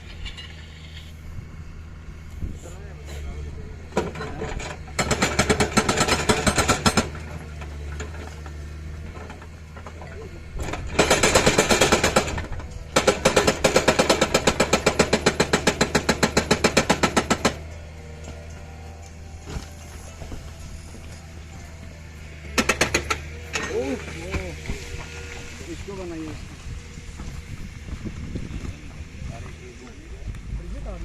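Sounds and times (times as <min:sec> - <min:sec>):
excavator engine running: 0:00.0 - 0:31.0
hydraulic breaker hammering: 0:03.9 - 0:19.8, 0:22.4 - 0:25.2.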